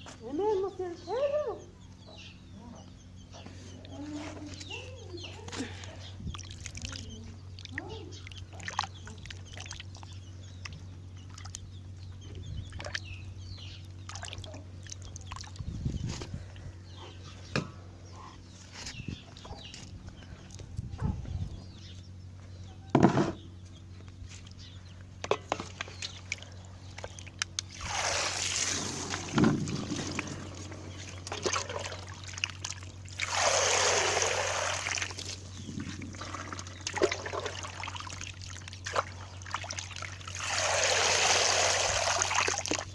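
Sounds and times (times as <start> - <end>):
water pouring and splashing: 6.3 - 10.1, 14.1 - 15.6, 27.0 - 42.9.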